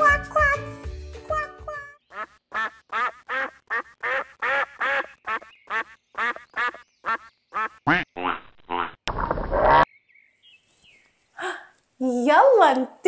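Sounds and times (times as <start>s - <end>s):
duck quacking: 2.0s - 9.0s.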